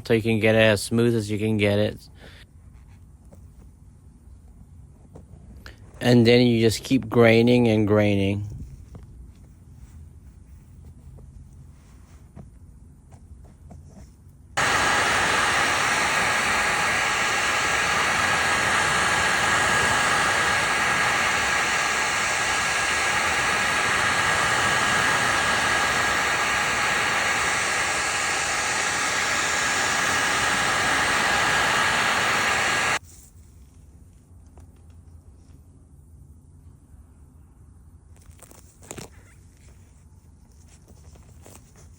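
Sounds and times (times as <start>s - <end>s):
heat gun blowing with whine: 14.6s - 33.0s.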